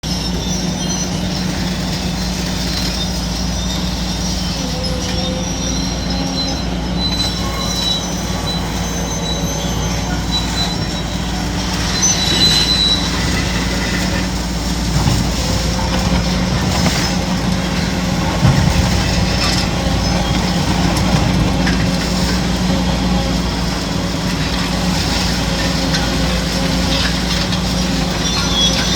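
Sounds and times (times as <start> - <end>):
excavator diesel engine running: 0.0 - 28.9
high metallic squeals: 0.0 - 28.9
demolition knocks: 10.3 - 28.9.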